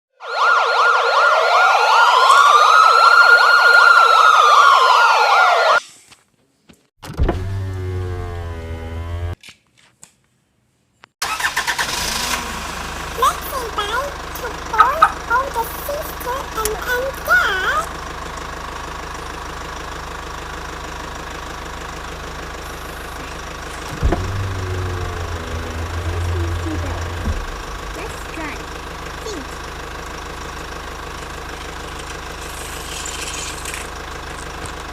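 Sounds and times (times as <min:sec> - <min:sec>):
police siren yelp: 0:00.1 - 0:05.8, 0:22.6 - 0:29.6
siren wail: 0:00.1 - 0:05.8, 0:22.7 - 0:28.8
engine idling hum: 0:11.9 - 0:34.9
sudden thump: 0:23.8 - 0:28.8.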